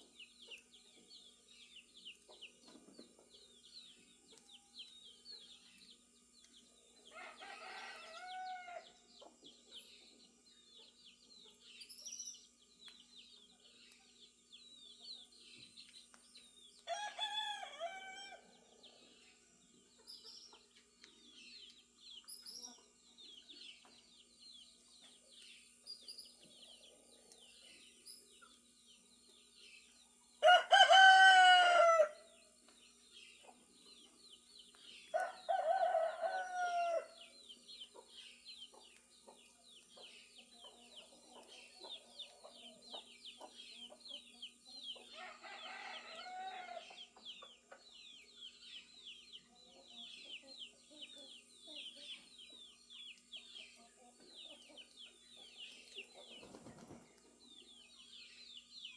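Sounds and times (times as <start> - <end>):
small birds chirping: 0.0 - 58.9
roosters crowing: 7.1 - 9.0, 16.9 - 18.6, 30.4 - 32.3, 35.2 - 37.2, 45.1 - 47.0.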